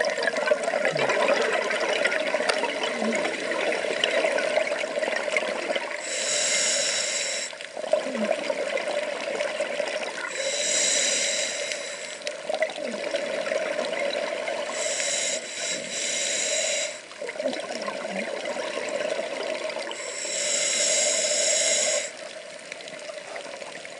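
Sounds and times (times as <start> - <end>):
water sloshing and bubbling: 0.0 - 23.9
diver breathing underwater: 6.0 - 7.6, 10.2 - 12.4, 14.6 - 17.1, 19.8 - 22.3.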